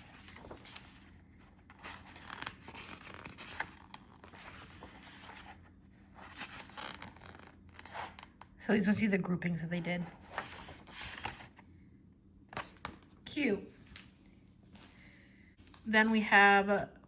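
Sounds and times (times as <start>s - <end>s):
paper rustling and scraping: 0.0s - 8.4s, 10.0s - 11.6s.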